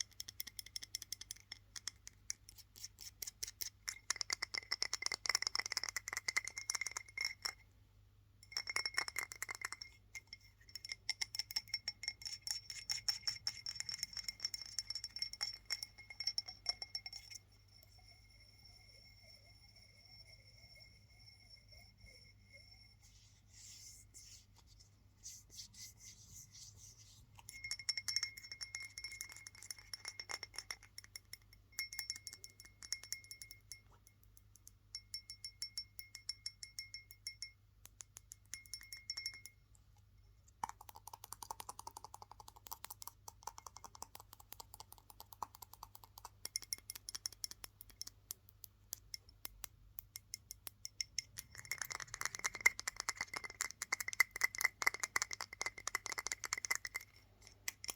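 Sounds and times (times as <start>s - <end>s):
ringing tapping on hard object: 0.0s - 2.3s, 3.9s - 7.6s, 8.4s - 23.0s, 27.5s - 39.6s, 45.8s - 48.2s, 48.9s - 57.9s.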